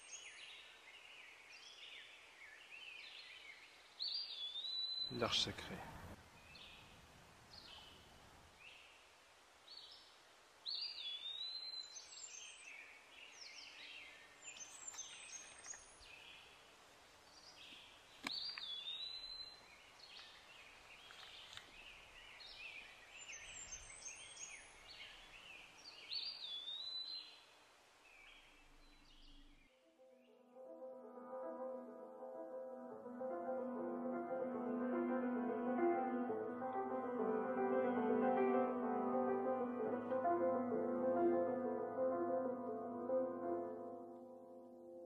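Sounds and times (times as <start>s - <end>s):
songbirds singing faintly: 0.0s - 30.5s
steady outdoor hiss: 0.0s - 45.0s.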